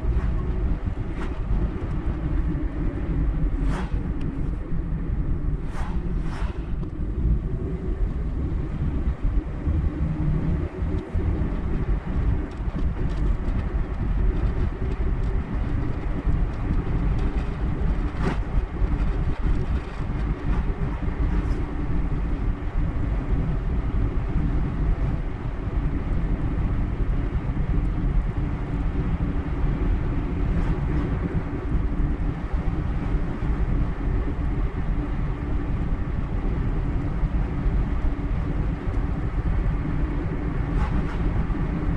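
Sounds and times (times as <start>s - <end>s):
tyre and road rumble: 0.0s - 23.5s, 37.6s - 41.9s
car engine drone: 0.0s - 27.3s.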